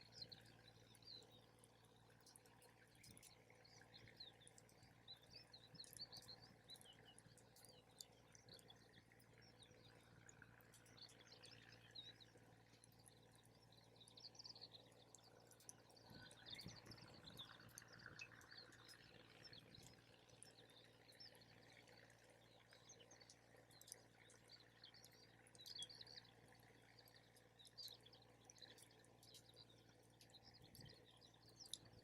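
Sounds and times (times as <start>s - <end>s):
faint birds chirping: 0.0s - 32.0s
wind rumble on microphone: 15.4s - 21.9s.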